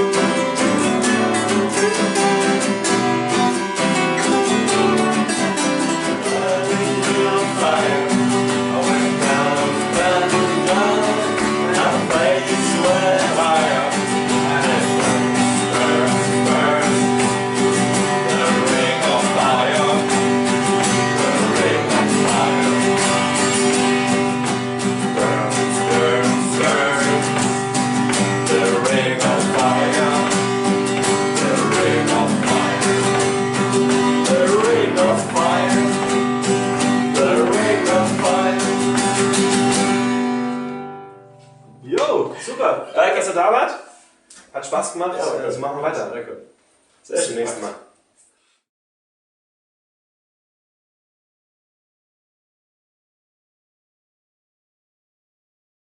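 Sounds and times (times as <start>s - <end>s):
bending guitar melody: 0.0s - 42.5s
acoustic guitars strumming chords: 0.0s - 43.3s.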